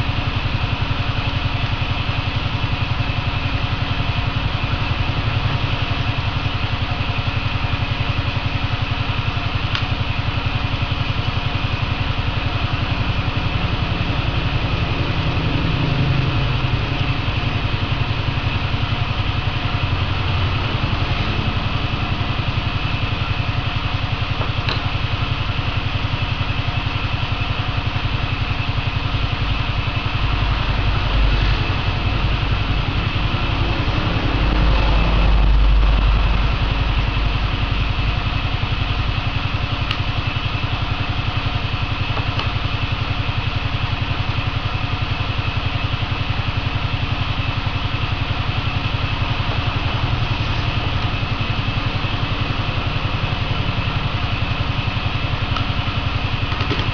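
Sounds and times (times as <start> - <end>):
engine running steadily: 0.0 - 56.9.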